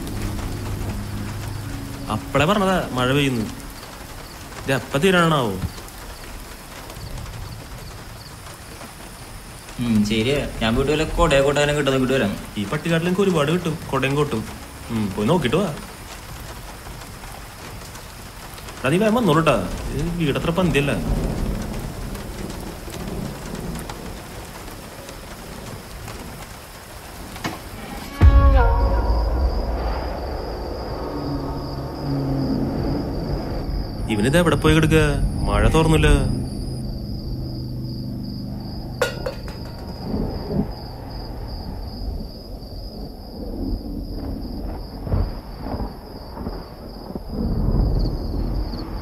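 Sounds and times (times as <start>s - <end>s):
low rumble of thunder: 0.0s - 9.1s, 19.3s - 27.4s, 28.2s - 49.0s
steady rain falling: 0.0s - 49.0s
high-pitched cricket trill: 28.0s - 49.0s
sharp clink: 39.0s - 40.0s.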